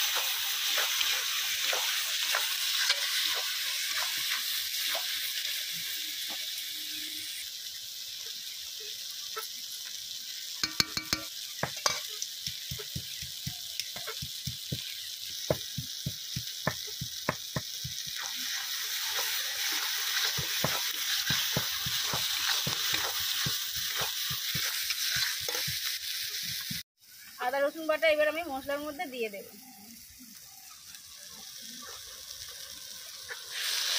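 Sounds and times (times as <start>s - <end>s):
onions and tomatoes sizzling in oil: 0.0s - 33.9s
spatula scraping and knocking pan: 0.1s - 5.0s, 10.6s - 26.8s.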